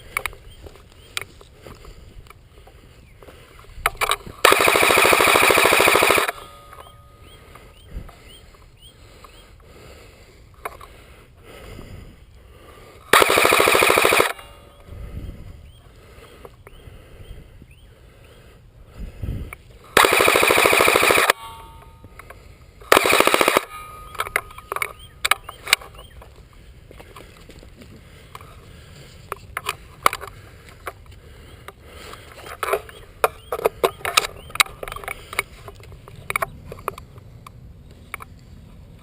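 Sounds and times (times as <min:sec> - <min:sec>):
airsoft gun full-auto bursts: 0:04.4 - 0:06.4, 0:13.1 - 0:14.6, 0:19.9 - 0:21.4, 0:22.8 - 0:24.2.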